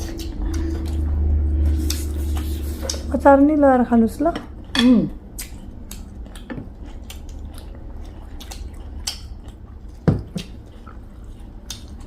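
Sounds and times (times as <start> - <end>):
wet chewing and mouth smacks: 5.3 - 12.0.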